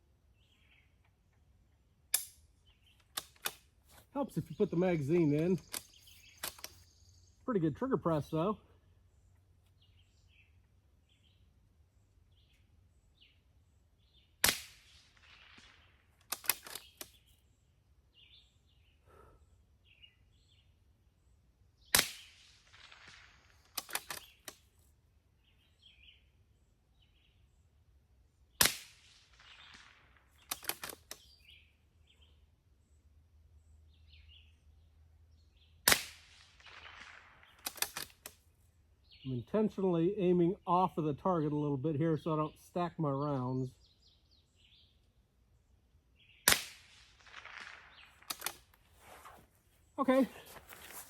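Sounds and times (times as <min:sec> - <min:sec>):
rifle action metallic clicks: 0:03.0 - 0:03.7, 0:05.3 - 0:06.9, 0:16.2 - 0:17.2, 0:23.7 - 0:24.6, 0:30.4 - 0:31.3, 0:37.6 - 0:38.4, 0:48.2 - 0:48.7
rifle shots: 0:14.4 - 0:16.9, 0:21.9 - 0:24.4, 0:28.6 - 0:31.0, 0:35.8 - 0:38.3, 0:46.4 - 0:48.7.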